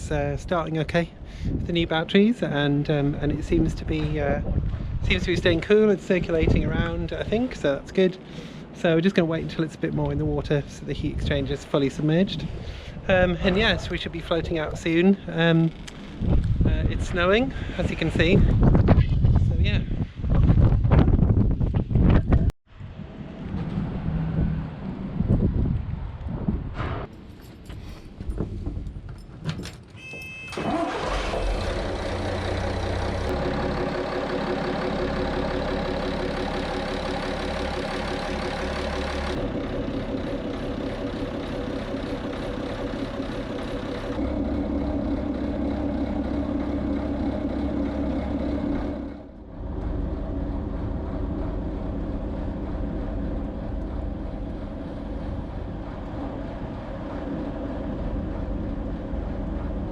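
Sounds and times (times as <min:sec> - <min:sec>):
boat engine running: 0:30.5 - 0:59.9.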